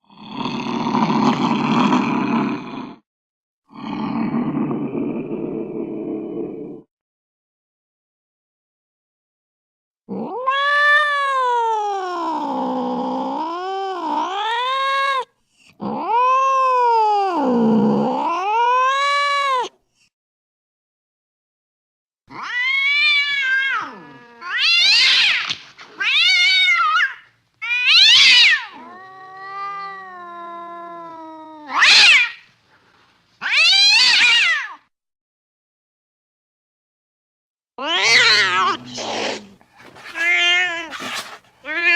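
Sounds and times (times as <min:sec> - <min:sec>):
cat yowling: 0:10.1 - 0:19.7, 0:22.3 - 0:32.5, 0:33.4 - 0:34.8, 0:37.8 - 0:41.9.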